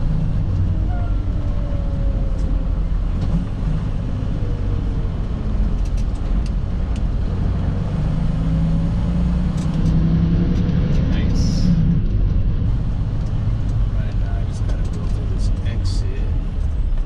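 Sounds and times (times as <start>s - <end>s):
truck diesel engine droning: 0.0s - 17.0s.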